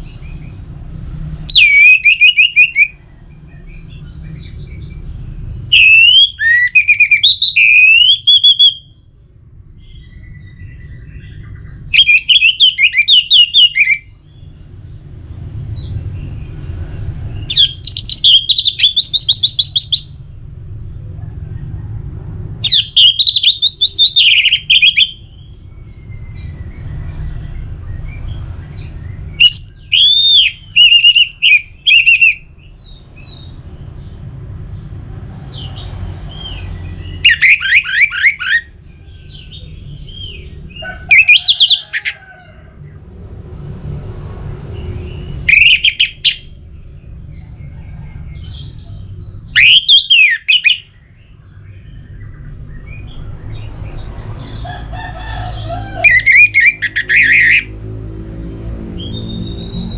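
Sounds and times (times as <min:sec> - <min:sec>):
thrush singing whistles and trills: 0:00.0 - 0:09.1, 0:09.8 - 0:14.5, 0:17.3 - 0:20.3, 0:22.6 - 0:33.6, 0:35.5 - 0:42.2, 0:44.9 - 0:46.7, 0:48.4 - 0:53.2, 0:55.6 - 0:57.7, 0:59.0 - 0:59.9.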